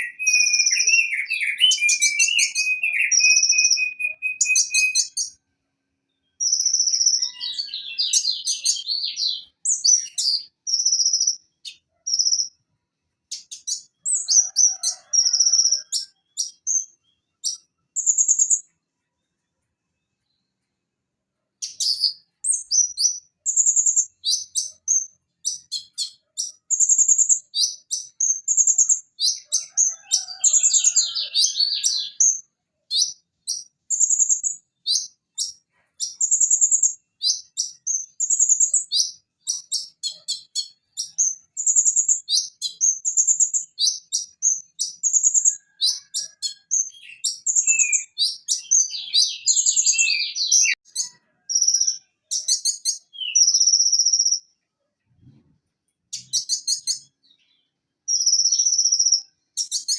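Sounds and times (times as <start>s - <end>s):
sunbird singing high trills: 0.0s - 5.4s, 6.1s - 12.6s, 21.6s - 54.5s.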